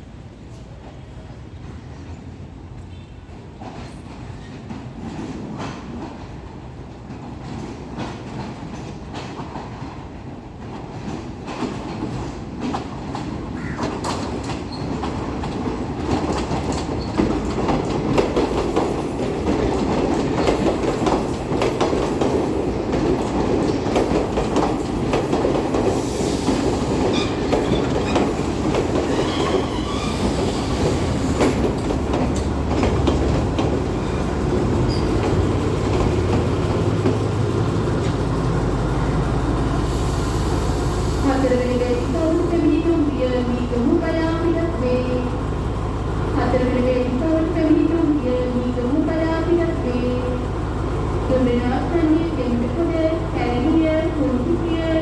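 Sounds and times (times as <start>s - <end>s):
train wheels clacking on rails: 2.8s - 55.0s
faint wheel squeal: 29.1s - 30.8s, 34.9s - 35.2s.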